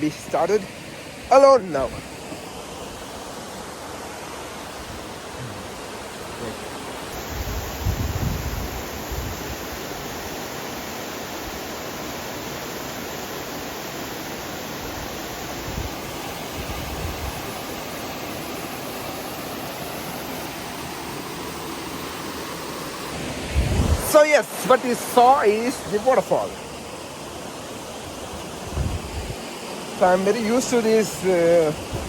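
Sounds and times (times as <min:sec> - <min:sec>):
waterfall rushing: 0:00.0 - 0:32.0
low thumps on microphone: 0:28.7 - 0:29.2.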